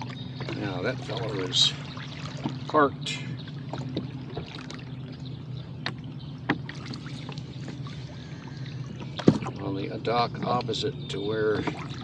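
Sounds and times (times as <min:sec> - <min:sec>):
steady low hum: 0:00.0 - 0:12.0
water splashing around a rowboat: 0:00.0 - 0:12.0
light clicks and knocks: 0:10.2 - 0:10.9.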